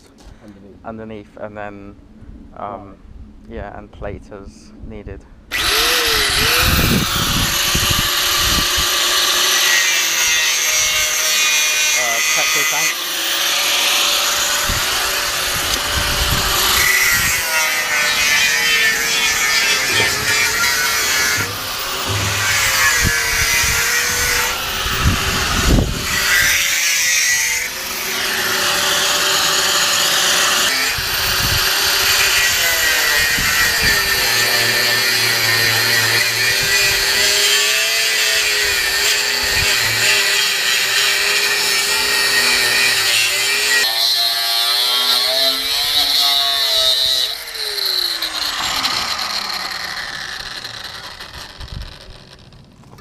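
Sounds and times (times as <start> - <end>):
angle grinder cutting steel: 5.5 - 52.7.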